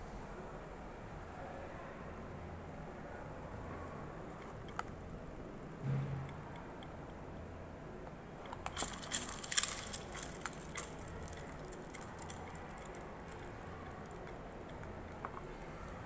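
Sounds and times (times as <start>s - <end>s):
faint low hum: 0.0s - 16.0s
small clicks and rattles: 4.2s - 5.3s, 8.0s - 16.0s.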